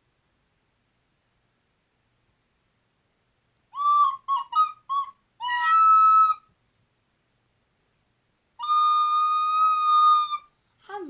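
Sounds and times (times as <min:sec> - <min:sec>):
recorder playing: 0:03.8 - 0:06.4, 0:08.6 - 0:10.5.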